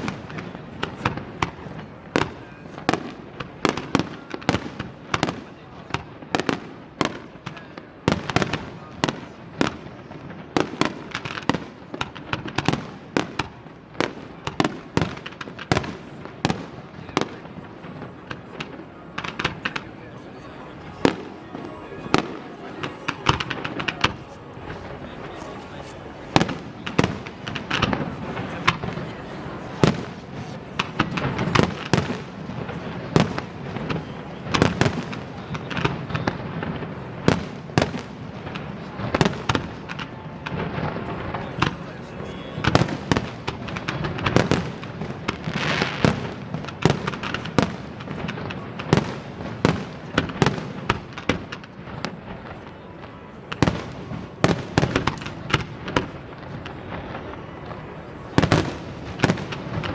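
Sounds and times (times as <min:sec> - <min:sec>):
fireworks bursting with sharp bangs: 0:00.0 - 0:59.9.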